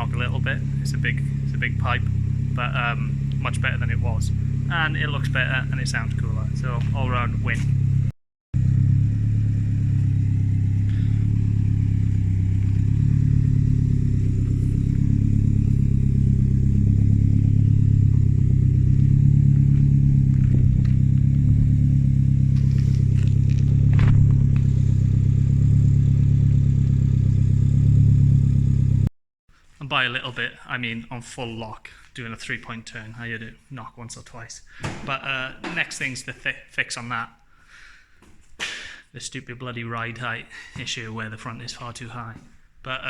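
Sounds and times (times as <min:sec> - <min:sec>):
car engine running: 0:00.0 - 0:29.1.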